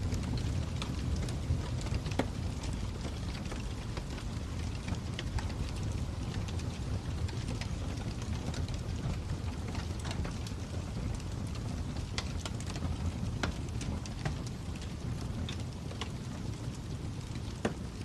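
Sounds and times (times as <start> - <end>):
fire burning rumble: 0.0 - 18.0
fire popping and snapping: 0.0 - 18.0.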